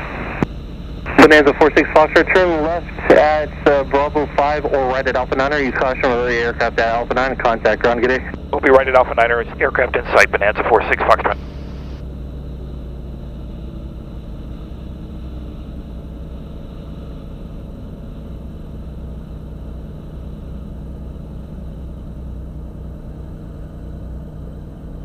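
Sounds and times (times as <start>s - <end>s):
propeller plane engine droning: 0.0s - 25.0s.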